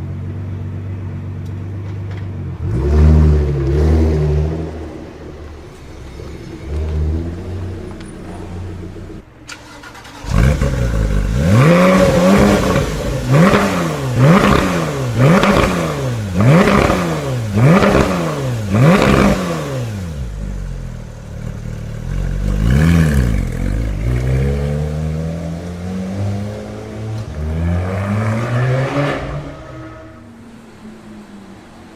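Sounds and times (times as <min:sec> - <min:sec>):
car engine revving: 0:02.1 - 0:31.9.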